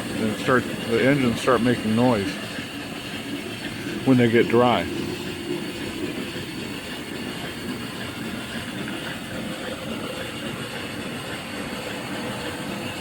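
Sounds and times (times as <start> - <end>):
steam engines clattering: 0.0 - 13.0
steam hissing: 0.0 - 13.0.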